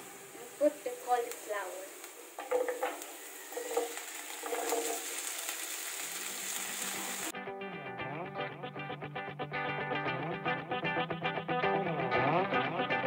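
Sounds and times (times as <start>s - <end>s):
vegetables sizzling in hot oil: 0.0s - 7.3s
guitar music: 6.6s - 13.0s.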